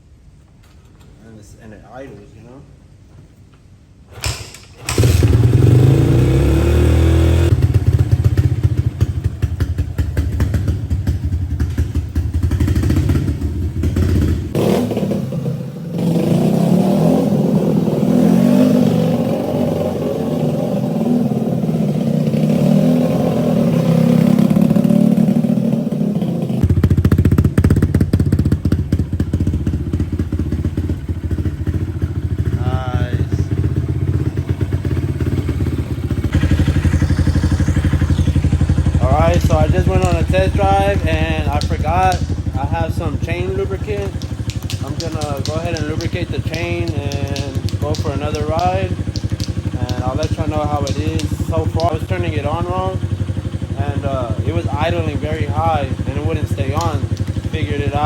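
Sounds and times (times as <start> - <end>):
dirt bike engine running: 4.9 - 58.0
engine knocks: 33.5 - 53.8, 54.4 - 58.0.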